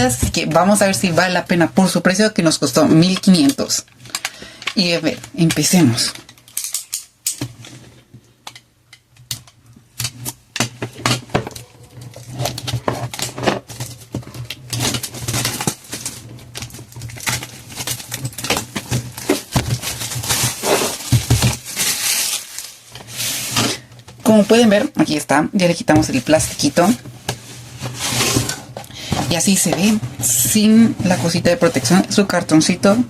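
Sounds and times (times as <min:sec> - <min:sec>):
plastic film crinkling: 0:11.6 - 0:24.8, 0:26.7 - 0:31.2
fingernails scratching plastic: 0:11.7 - 0:22.3, 0:29.3 - 0:32.0.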